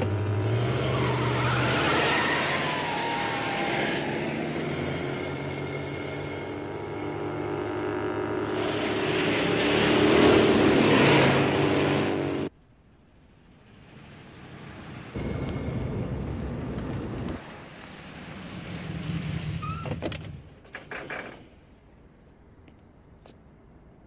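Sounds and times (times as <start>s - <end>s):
rushing noise: 13.4s - 19.8s.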